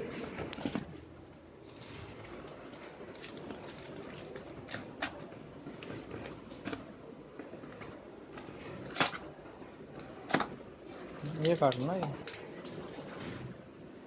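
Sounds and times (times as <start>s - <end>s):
packaging rustling: 1.7s - 6.8s.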